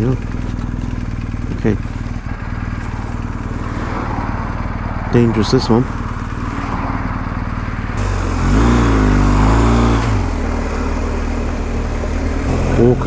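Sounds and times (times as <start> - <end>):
motorcycle engine running: 0.0 - 13.0
wind rushing: 2.3 - 11.2.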